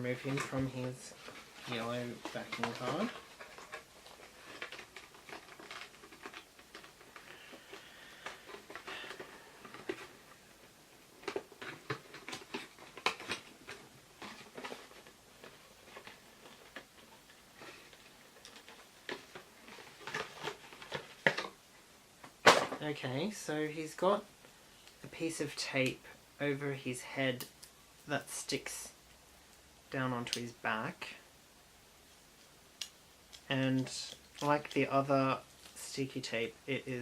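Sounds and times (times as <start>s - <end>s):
hands rustling cardboard packaging: 0.0s - 22.7s, 32.1s - 36.1s.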